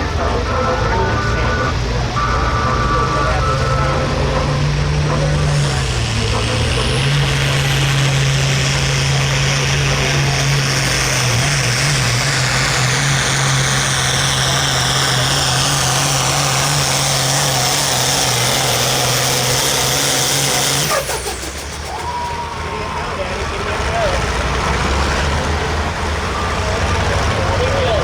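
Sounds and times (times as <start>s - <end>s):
high whine: 0.0s - 20.9s
tractor engine at full throttle: 0.0s - 28.0s.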